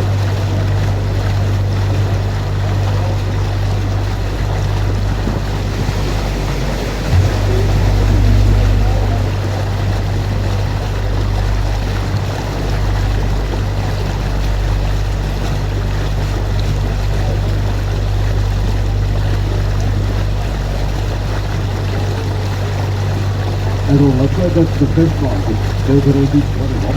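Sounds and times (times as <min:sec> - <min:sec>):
boat motor humming: 0:00.0 - 0:26.9
water wash: 0:00.0 - 0:26.9.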